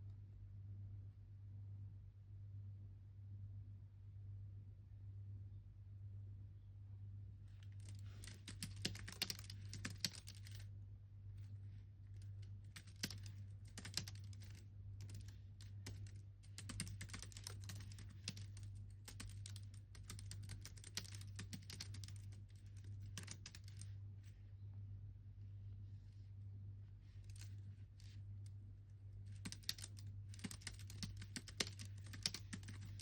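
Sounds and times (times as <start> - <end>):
steady low hum: 0.0 - 33.0
typing on computer keyboard: 7.8 - 10.6, 12.7 - 23.9, 29.3 - 33.0.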